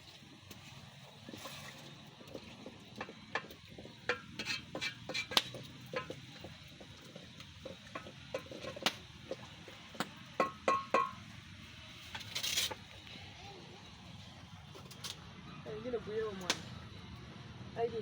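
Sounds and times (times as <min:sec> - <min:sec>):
utensil scraping pot: 0:00.0 - 0:11.3
utensil clinking in metal pot: 0:01.3 - 0:11.2.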